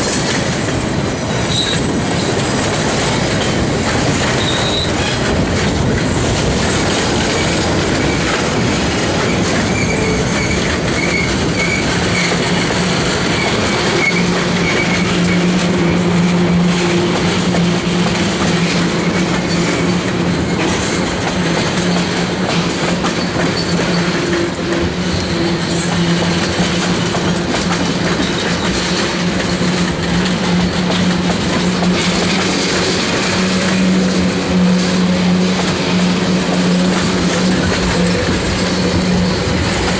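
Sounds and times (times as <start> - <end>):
train wheels clattering over rails: 0.0 - 39.9
wheel squeal: 1.5 - 1.9, 4.4 - 5.2, 9.2 - 15.5, 23.2 - 24.1.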